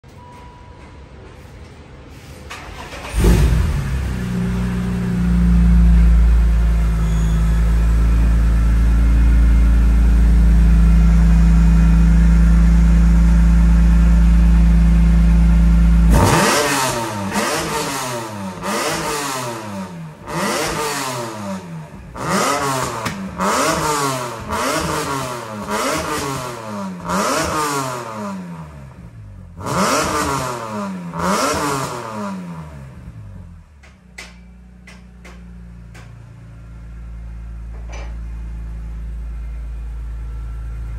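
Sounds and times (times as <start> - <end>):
car engine idling: 2.5 - 16.3, 32.9 - 40.9.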